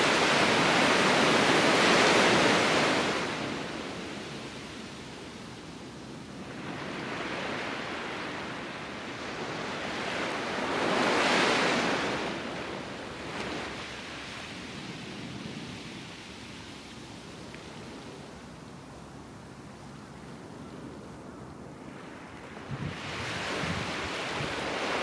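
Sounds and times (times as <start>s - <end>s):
waves washing on a beach: 0.0s - 25.0s.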